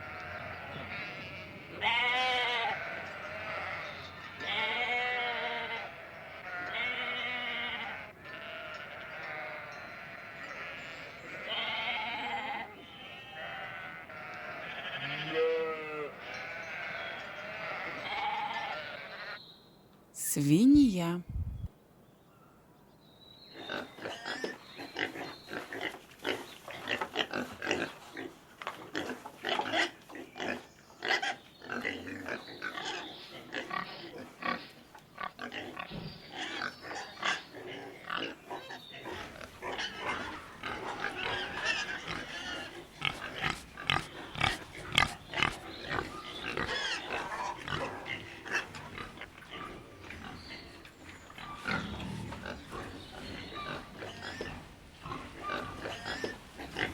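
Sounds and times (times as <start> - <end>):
pigs grunting and squealing: 39.1 - 50.8, 51.4 - 56.9.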